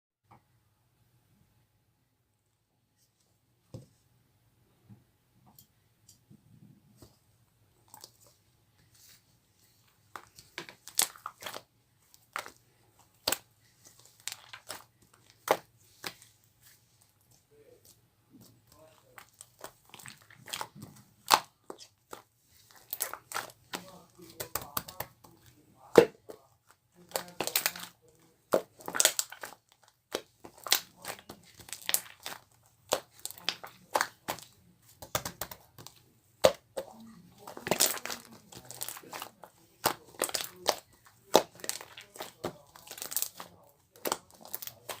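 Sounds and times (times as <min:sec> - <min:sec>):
slime popping and crackling: 0:10.1 - 0:16.3, 0:18.4 - 0:26.4, 0:27.0 - 0:45.0.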